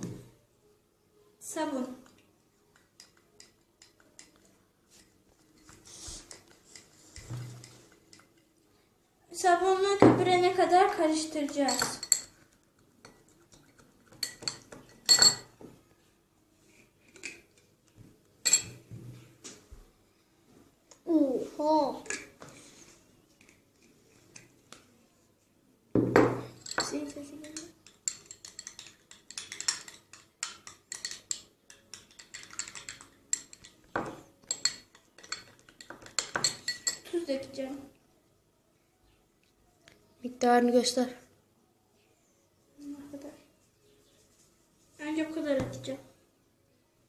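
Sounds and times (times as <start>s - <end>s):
spoon clinking against a bowl: 2.7s - 4.4s, 11.5s - 15.6s, 18.4s - 18.9s, 26.5s - 37.2s.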